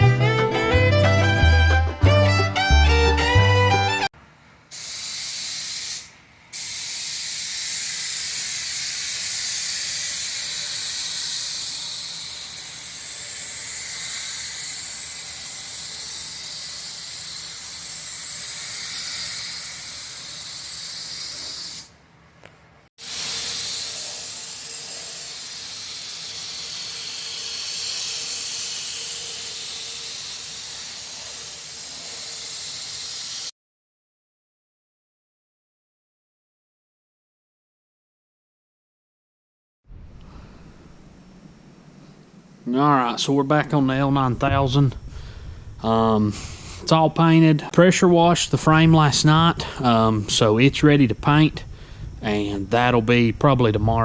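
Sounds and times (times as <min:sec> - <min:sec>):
paint spray gun hissing: 0:04.7 - 0:21.9, 0:23.0 - 0:33.5.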